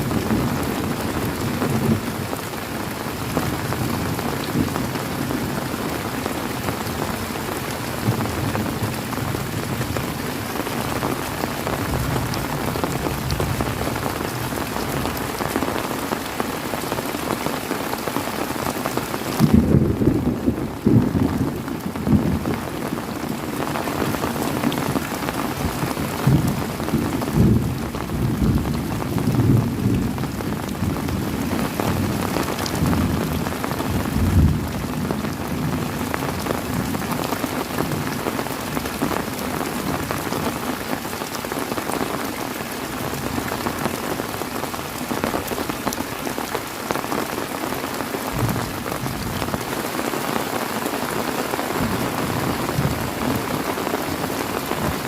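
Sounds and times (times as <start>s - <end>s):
heavy rain pouring: 0.0s - 55.0s
rolling thunder: 19.4s - 22.5s.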